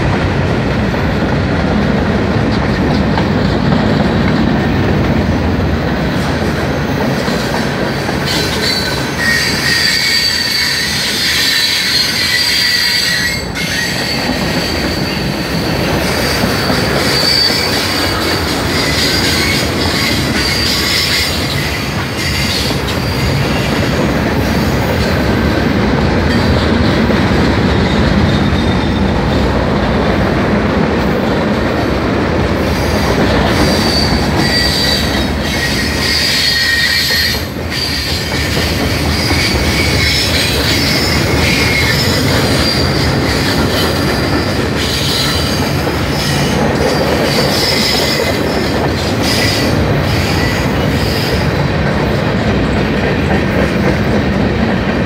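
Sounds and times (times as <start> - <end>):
steel wheels rumbling on rail: 0.0 - 55.0
high-pitched wheel squeal: 8.2 - 23.4, 33.5 - 51.4.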